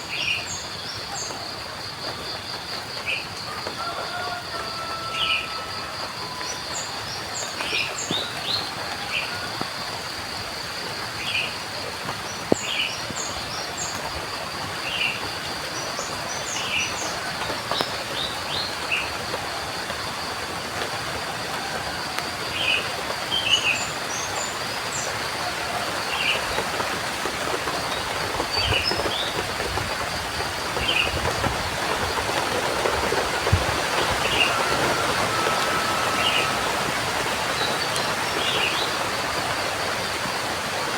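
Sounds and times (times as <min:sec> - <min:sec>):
rain hiss: 0:00.0 - 0:40.9
birds chirping: 0:32.1 - 0:39.1.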